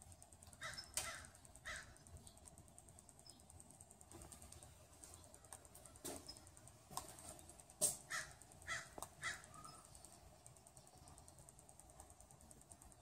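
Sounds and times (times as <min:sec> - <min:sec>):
bird calling: 0:00.5 - 0:02.1, 0:08.0 - 0:10.1.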